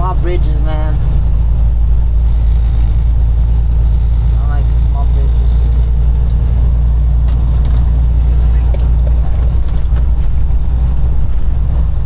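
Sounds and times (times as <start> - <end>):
truck engine and road drone: 0.0 - 12.0.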